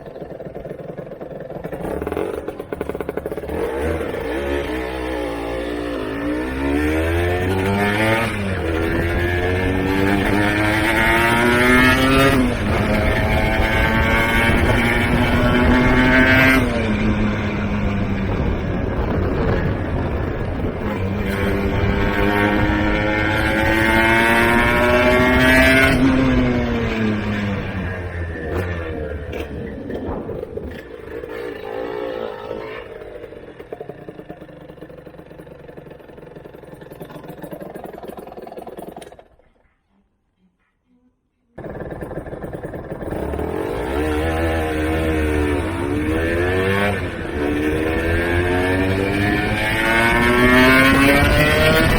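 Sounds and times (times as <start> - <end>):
two-stroke motorcycle engine accelerating: 0.0 - 39.6, 41.6 - 51.9.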